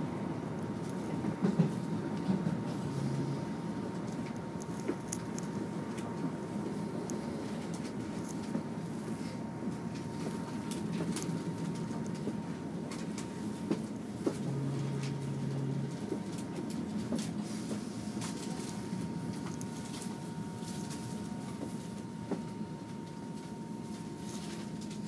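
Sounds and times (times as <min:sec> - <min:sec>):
train rumble and hum: 0:00.0 - 0:25.0
short low hum: 0:00.8 - 0:16.4.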